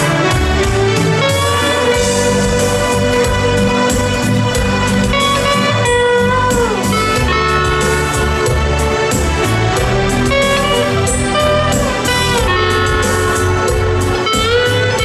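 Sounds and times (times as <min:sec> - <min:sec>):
backing accompaniment with bass: 0:00.0 - 0:15.0
steel guitar melody: 0:01.1 - 0:08.6, 0:09.8 - 0:15.0.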